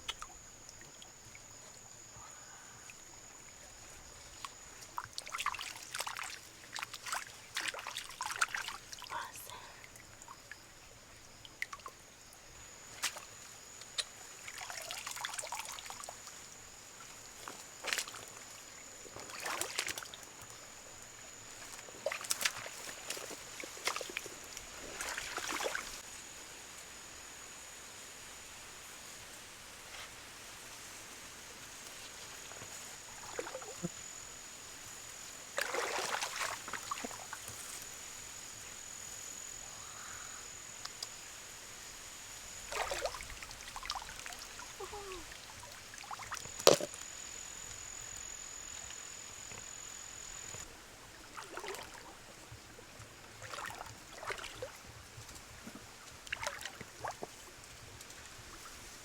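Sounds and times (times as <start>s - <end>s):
water splashing and sloshing: 2.8s - 12.0s, 12.8s - 26.0s, 31.8s - 34.0s, 35.2s - 38.7s, 42.6s - 47.3s, 48.0s - 59.0s
thin high whine: 32.6s - 50.7s.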